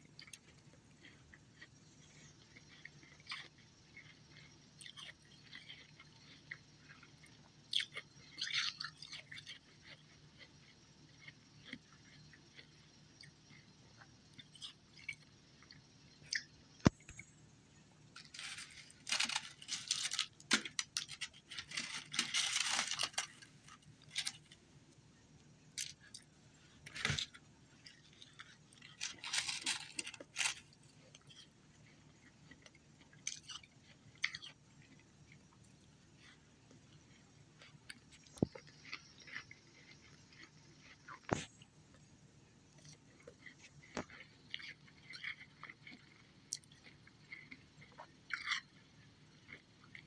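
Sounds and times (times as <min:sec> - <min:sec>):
person crunching ice: 0:18.2 - 0:24.4, 0:28.8 - 0:30.7.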